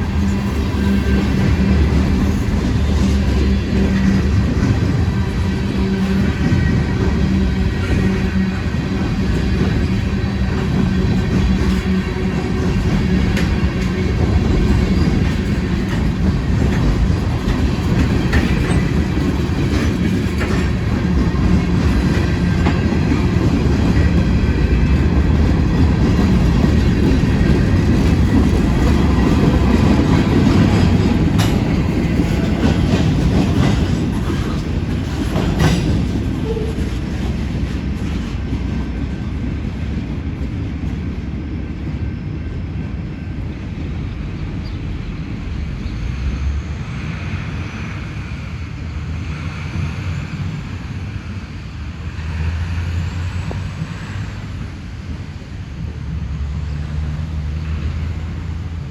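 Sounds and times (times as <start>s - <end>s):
freight train rumbling: 0.0s - 58.9s
wheels clicking over rail joints: 8.9s - 39.0s.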